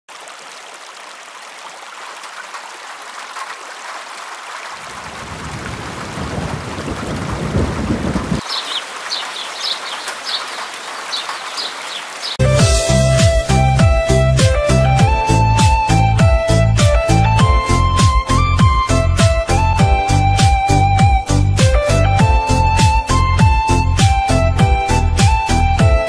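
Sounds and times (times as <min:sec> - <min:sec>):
rain hissing: 0:01.3 - 0:12.5.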